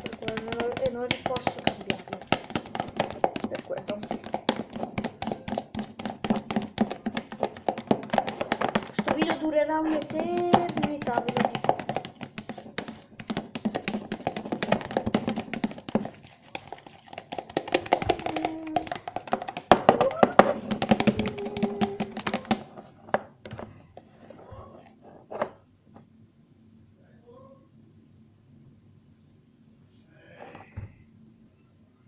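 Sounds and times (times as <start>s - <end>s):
spoon stirring slime in a bowl: 0.0s - 25.6s.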